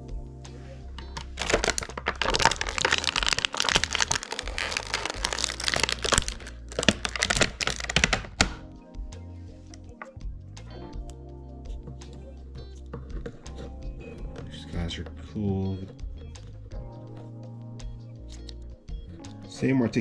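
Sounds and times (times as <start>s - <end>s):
background music: 0.0s - 20.0s
plastic packaging crackling: 1.0s - 8.6s.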